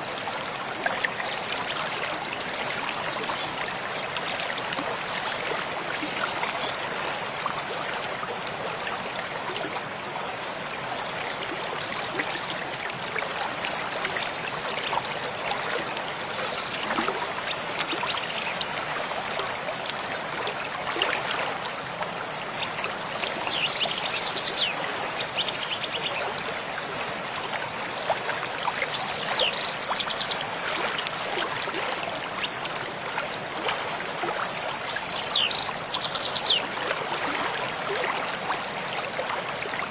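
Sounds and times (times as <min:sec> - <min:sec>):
mountain stream rushing: 0:00.0 - 0:39.9
songbird trilling: 0:35.2 - 0:36.6.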